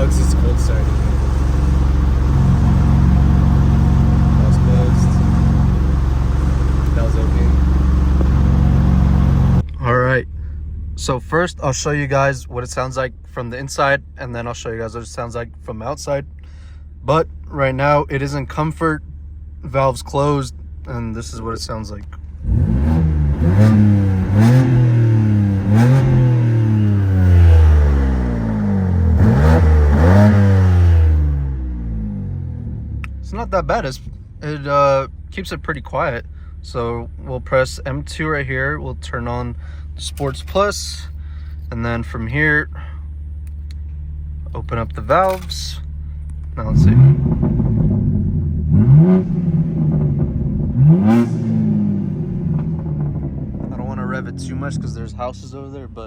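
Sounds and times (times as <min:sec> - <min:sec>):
car engine revving: 0:00.0 - 0:09.8, 0:22.2 - 0:34.8, 0:42.7 - 0:56.0.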